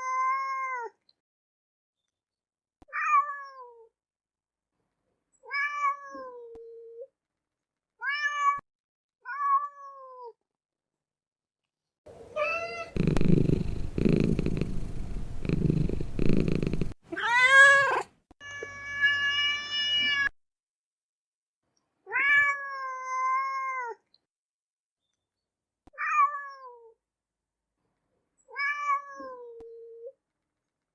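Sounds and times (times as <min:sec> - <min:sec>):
cat meowing: 0:12.4 - 0:20.3.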